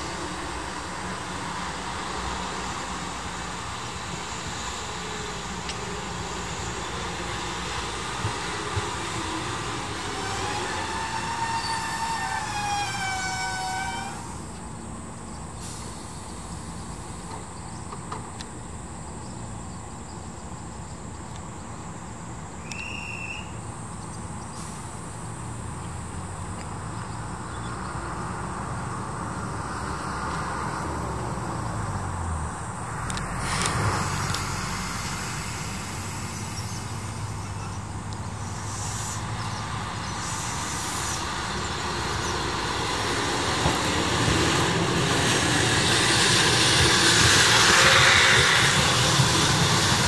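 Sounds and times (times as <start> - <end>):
electric train braking whine: 0.0 - 18.3, 24.5 - 26.2, 33.0 - 50.0
train rumbling at platform: 0.0 - 50.0.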